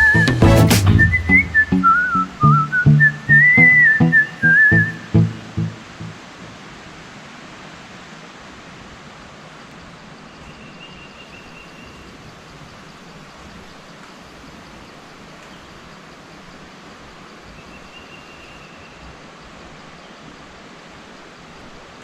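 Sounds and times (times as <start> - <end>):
thin high tone: 0.0 - 6.2
waterfall rushing: 1.0 - 9.4.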